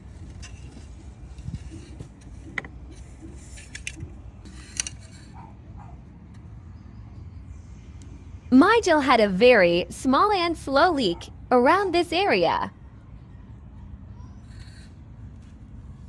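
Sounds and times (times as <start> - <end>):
clicks of parts being handled: 0.2 - 5.3.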